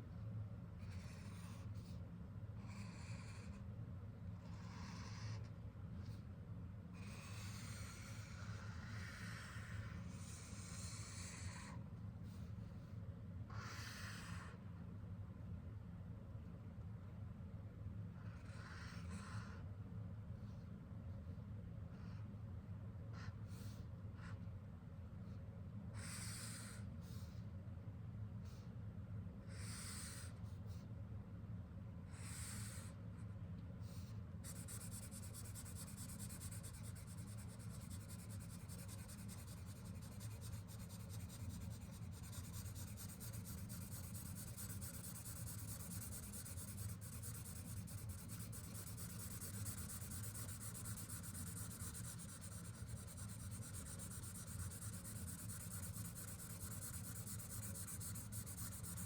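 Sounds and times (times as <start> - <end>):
marker scratching on paper: 0.8 - 2.0, 2.6 - 3.6, 4.4 - 6.2, 7.0 - 11.8, 33.9 - 59.0
low steady hum: 32.9 - 59.0.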